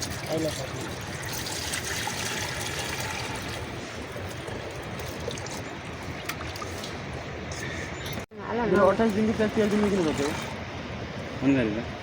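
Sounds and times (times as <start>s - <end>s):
rain on a shelter: 0.0s - 7.2s.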